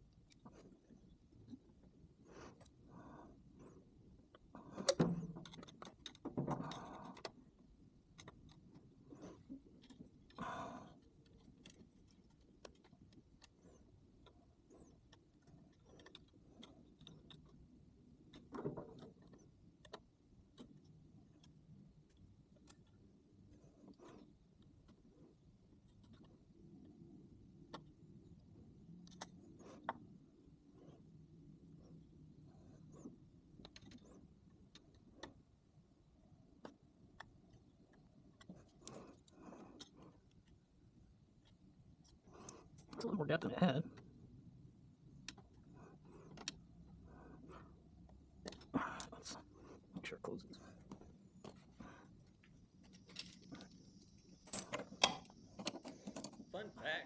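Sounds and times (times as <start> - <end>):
faint clicks and taps of tools: 0.1 - 31.2, 31.8 - 43.1, 43.8 - 56.6.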